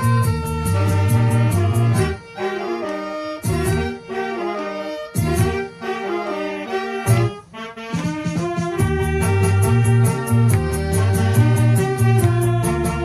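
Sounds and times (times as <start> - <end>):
band with bass and drums: 0.0 - 2.2, 5.2 - 5.7, 7.1 - 13.0
saxophone melody: 0.0 - 13.0.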